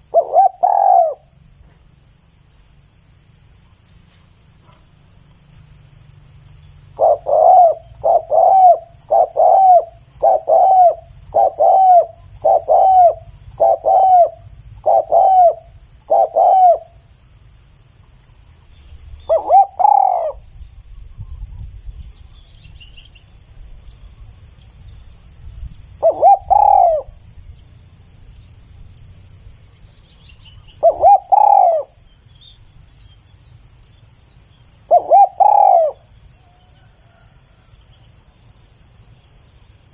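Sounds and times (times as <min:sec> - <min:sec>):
dove cooing: 0:00.0 - 0:01.3, 0:06.9 - 0:17.0, 0:19.3 - 0:20.5, 0:26.0 - 0:27.2, 0:30.7 - 0:32.0, 0:34.8 - 0:36.1.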